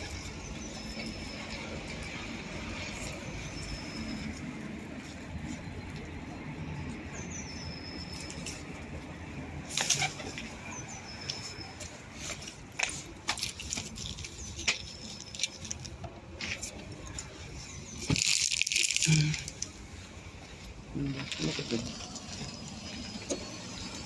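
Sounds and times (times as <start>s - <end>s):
pigeon wings flapping: 9.7s - 10.5s.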